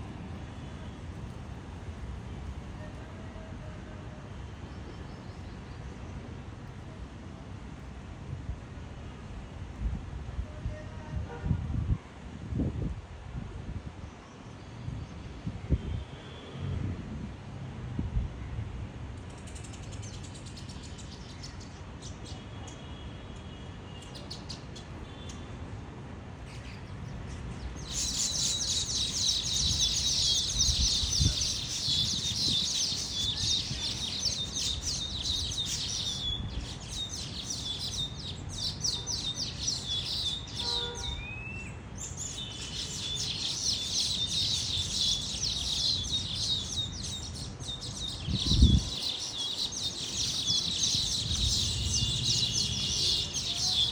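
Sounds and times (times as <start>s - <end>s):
small birds chirping: 26.4s - 53.9s.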